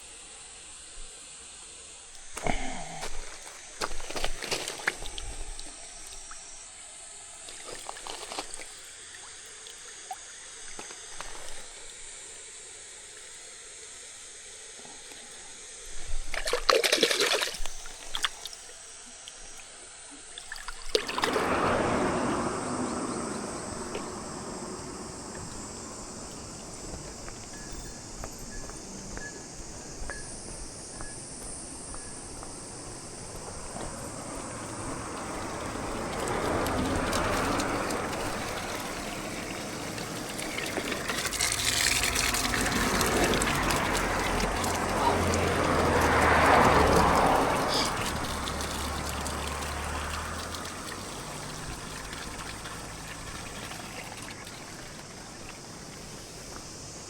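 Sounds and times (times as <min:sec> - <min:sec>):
splash: 0:02.2 - 0:12.0, 0:16.0 - 0:28.5, 0:32.4 - 0:56.5
liquid trickling and pouring: 0:07.4 - 0:12.0, 0:16.2 - 0:18.7, 0:20.2 - 0:28.6, 0:33.0 - 0:56.5.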